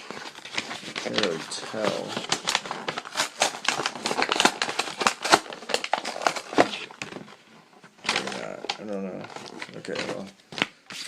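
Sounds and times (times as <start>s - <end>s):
mesh crinkling and crackling: 0.0s - 10.8s.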